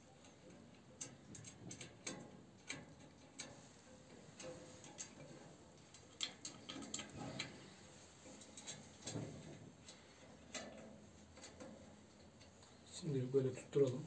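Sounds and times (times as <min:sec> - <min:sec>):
metal clips clicking and tapping: 0:00.2 - 0:03.6, 0:05.9 - 0:07.5.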